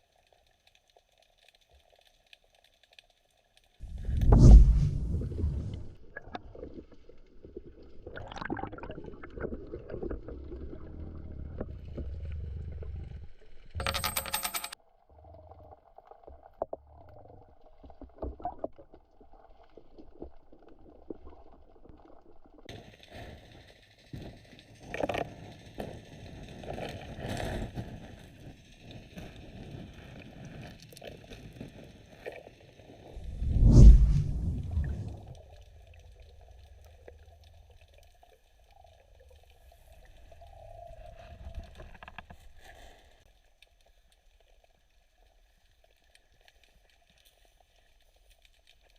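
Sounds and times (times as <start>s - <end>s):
low rumble: 3.8s - 6.3s, 33.2s - 37.2s
rushing water noise: 3.8s - 6.7s, 33.2s - 35.8s
underwater bubbling: 3.8s - 13.7s, 33.0s - 43.0s
clicks and knocks: 13.8s - 14.8s.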